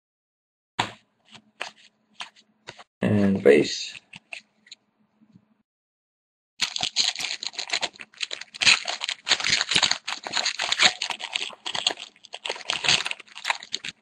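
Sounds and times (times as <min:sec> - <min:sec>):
foil wrapper crinkling and tearing: 0:06.6 - 0:14.0.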